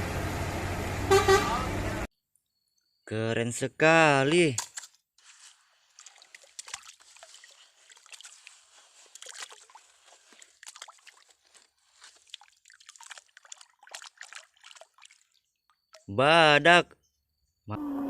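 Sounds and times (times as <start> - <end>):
sand trickling and scratching: 5.2 - 12.6.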